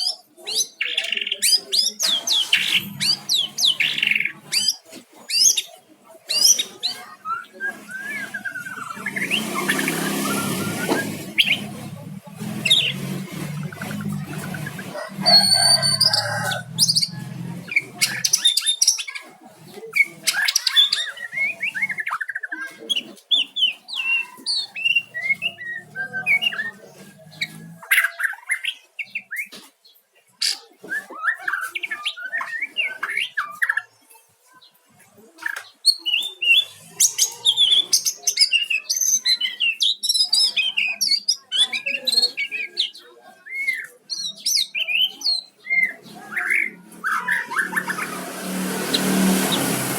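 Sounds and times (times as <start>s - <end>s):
rooster crowing: 14.8s - 17.6s.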